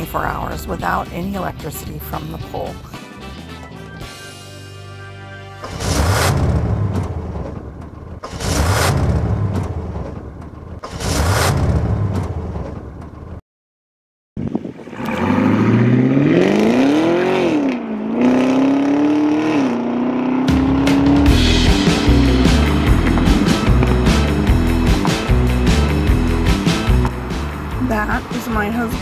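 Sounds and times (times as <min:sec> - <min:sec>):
car engine accelerating: 0:05.6 - 0:13.4, 0:14.9 - 0:29.0
cars passing loudly: 0:14.9 - 0:29.0.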